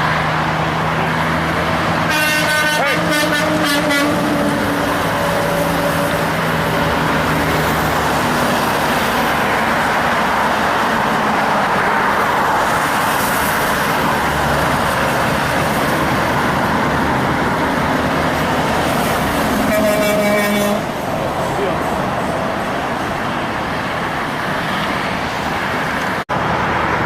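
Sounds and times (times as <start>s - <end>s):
truck engine drone: 0.0s - 27.0s
tyre and road noise: 0.0s - 27.0s.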